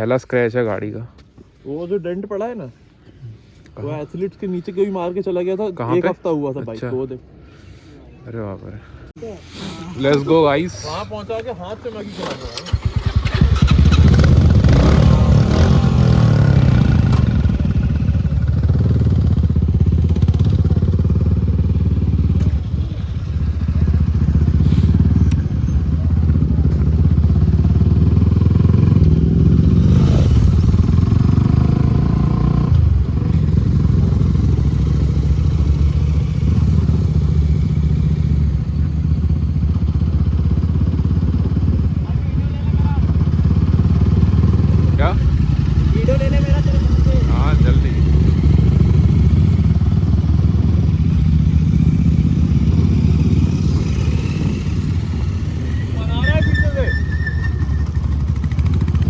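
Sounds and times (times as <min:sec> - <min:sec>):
motorcycle engine at riding speed: 0:12.2 - 0:59.0.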